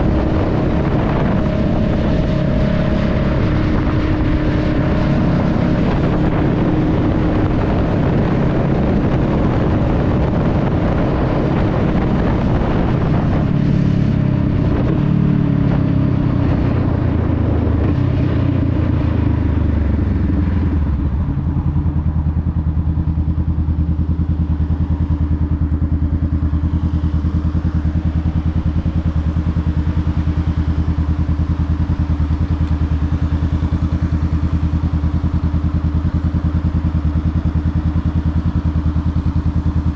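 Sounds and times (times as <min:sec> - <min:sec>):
wind rush: 0:00.0 - 0:25.3
motorcycle engine running: 0:00.0 - 0:39.9.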